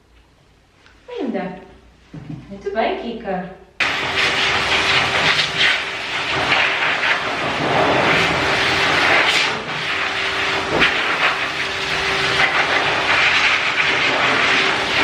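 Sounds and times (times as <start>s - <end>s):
grooming dryer blowing air: 3.8s - 15.0s.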